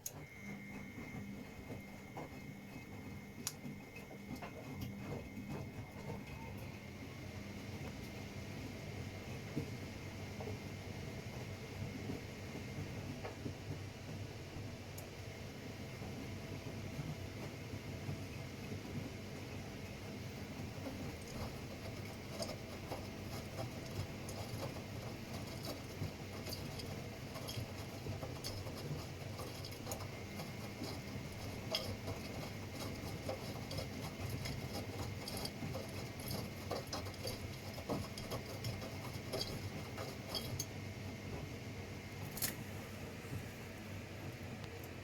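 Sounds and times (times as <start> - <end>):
washing machine drum humming: 0.0 - 45.0.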